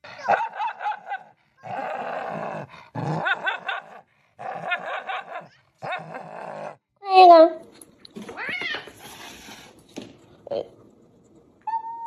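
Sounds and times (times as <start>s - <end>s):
dog growling: 0.0s - 7.0s.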